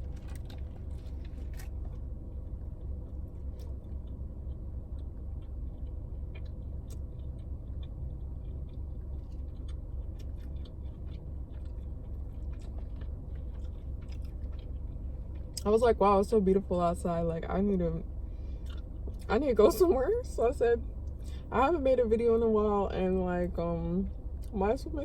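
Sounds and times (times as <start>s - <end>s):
person chewing food: 0.0s - 15.6s, 18.4s - 19.3s
steady low hum: 0.0s - 25.0s.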